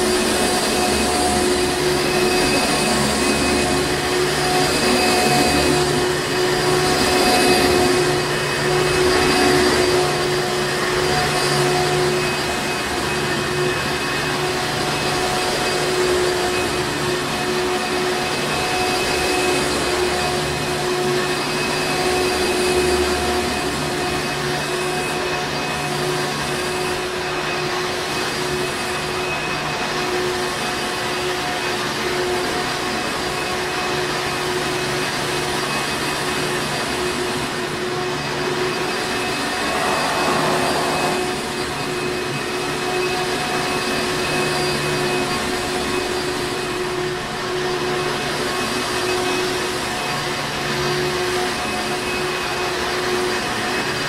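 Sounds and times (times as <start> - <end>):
upright vacuum cleaner running: 39.0 - 41.8.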